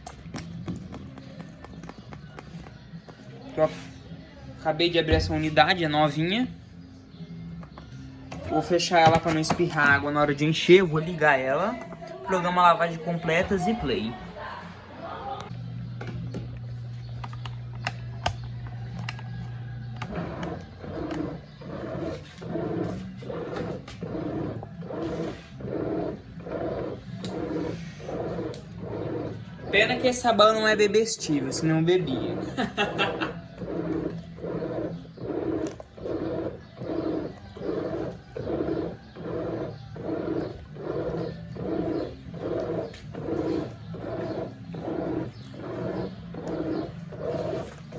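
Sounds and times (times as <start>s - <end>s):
washing machine pulsing churn: 13.3s - 47.9s
washing machine low hum: 13.5s - 47.9s.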